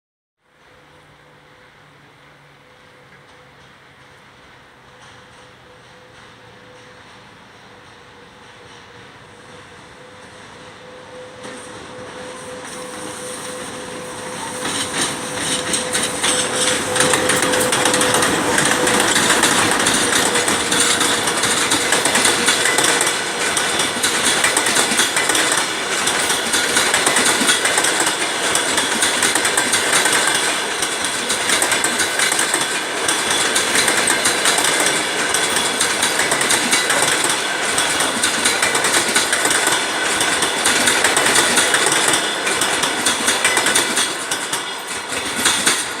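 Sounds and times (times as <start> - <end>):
train rumbling past: 0.4 - 46.0
wheels clicking over rail joints: 13.5 - 46.0.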